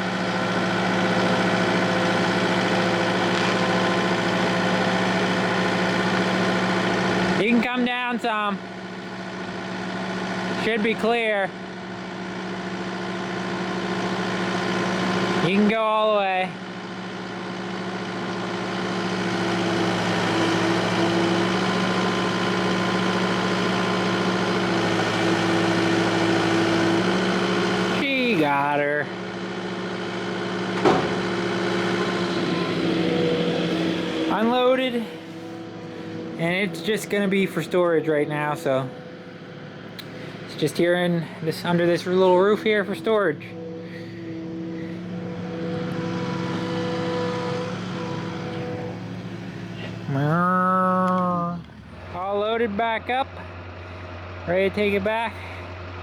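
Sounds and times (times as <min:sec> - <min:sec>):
diesel engine running: 0:00.0 - 0:56.0
higher machine tone: 0:00.6 - 0:07.7, 0:31.2 - 0:54.0.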